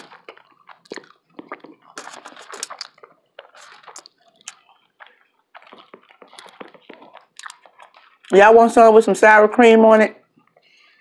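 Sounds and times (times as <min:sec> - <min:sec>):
person chewing wetly: 0:00.0 - 0:08.4.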